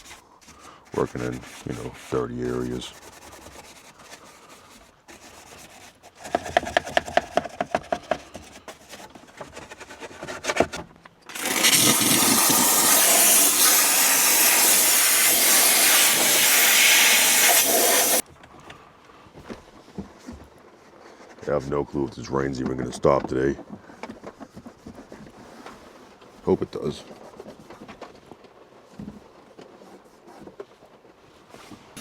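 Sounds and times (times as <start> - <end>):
brush scrubbing: 0.0 - 6.6, 11.3 - 18.2
air jet hissing: 11.3 - 18.2.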